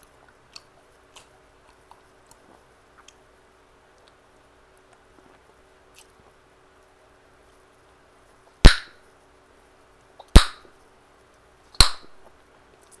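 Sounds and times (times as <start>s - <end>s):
chewing gum popping: 0.0s - 3.3s.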